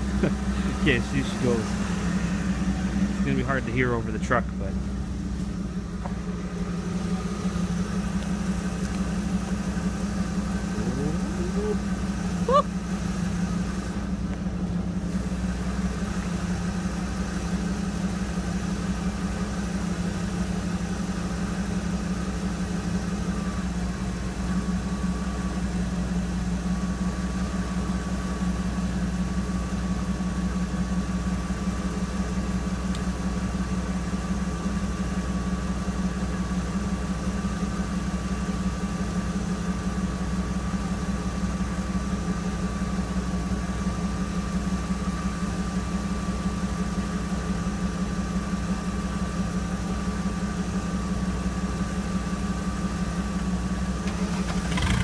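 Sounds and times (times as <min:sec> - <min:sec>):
diesel car engine idling: 0:00.0 - 0:55.0
truck engine idling: 0:00.0 - 0:55.0.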